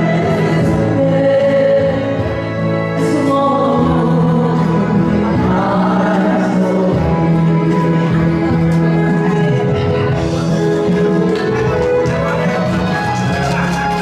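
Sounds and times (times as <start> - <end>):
instrumental accompaniment: 0.0 - 14.0
person singing a ballad: 0.0 - 14.0.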